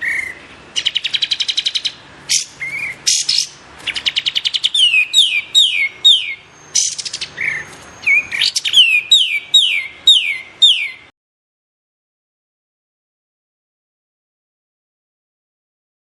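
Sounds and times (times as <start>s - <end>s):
songbird trilling and whistling: 0.0s - 11.1s.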